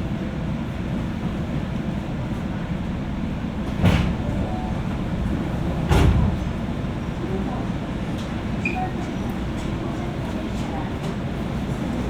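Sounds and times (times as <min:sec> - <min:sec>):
train car rumble: 0:00.0 - 0:12.0.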